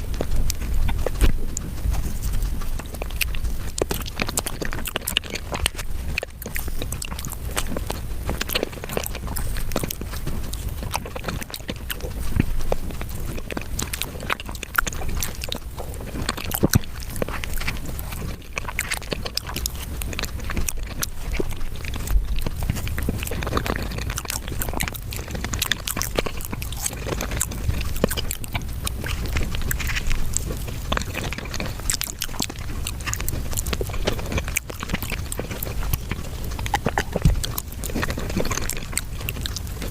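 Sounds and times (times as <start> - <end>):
rapid chewing and mouth clicks: 0.0 - 39.9.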